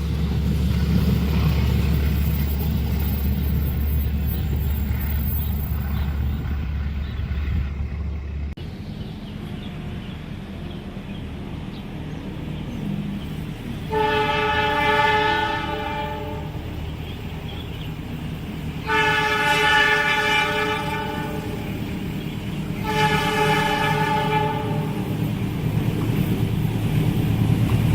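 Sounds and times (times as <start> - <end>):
approaching train rumble: 0.0 - 27.9
train horn blasts: 13.8 - 16.7, 18.8 - 21.8, 22.7 - 25.2.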